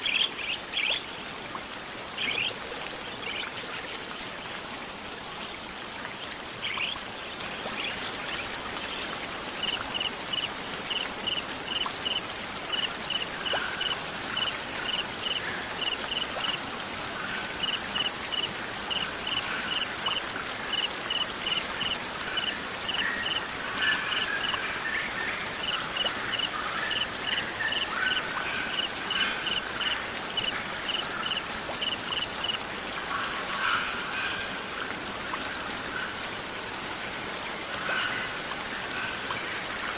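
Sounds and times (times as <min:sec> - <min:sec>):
water rushing: 0:00.0 - 0:39.9
cricket chirping: 0:09.6 - 0:16.6, 0:17.6 - 0:23.4, 0:25.6 - 0:32.6.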